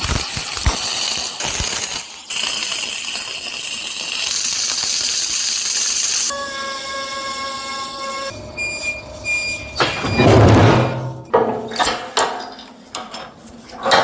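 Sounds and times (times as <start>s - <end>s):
welding arc crackling: 0.0s - 6.3s
steady pitched hum: 6.3s - 11.8s.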